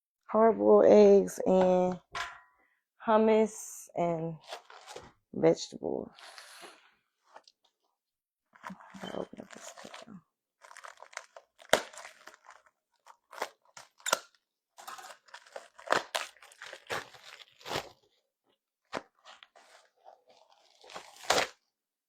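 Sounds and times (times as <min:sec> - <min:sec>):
crunching and crackling of food: 0:08.6 - 0:18.2, 0:18.8 - 0:21.7.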